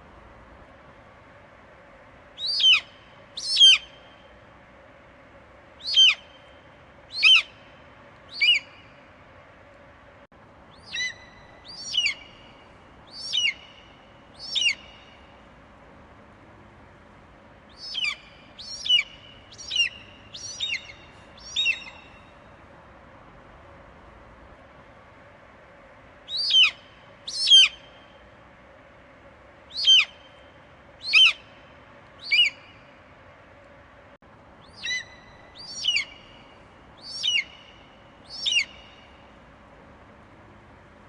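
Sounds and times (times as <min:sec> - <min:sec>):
faint steady hiss: 0:00.0 - 0:41.0.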